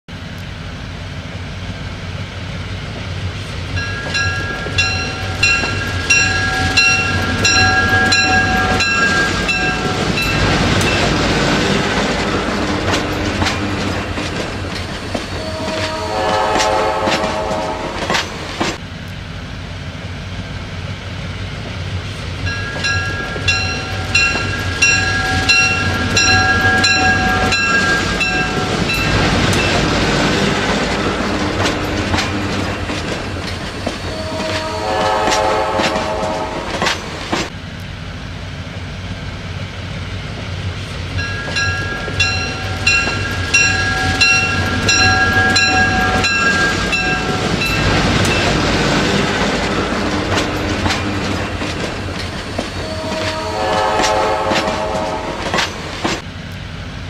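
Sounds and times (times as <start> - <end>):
diesel train rumbling past: 0.1 - 57.0
bell ringing: 3.8 - 11.2, 22.5 - 29.8, 41.2 - 48.6
train horn chord: 15.4 - 18.1, 34.1 - 36.7, 52.8 - 55.5.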